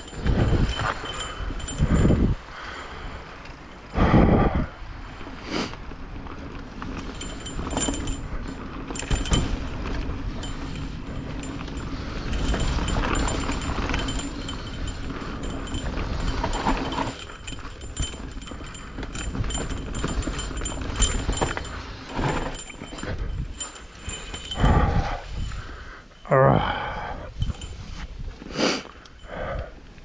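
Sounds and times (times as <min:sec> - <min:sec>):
bike rattling and clicking: 0:00.0 - 0:04.0, 0:05.1 - 0:26.2, 0:27.2 - 0:29.2
bike tyres rumbling on dirt: 0:05.0 - 0:25.6.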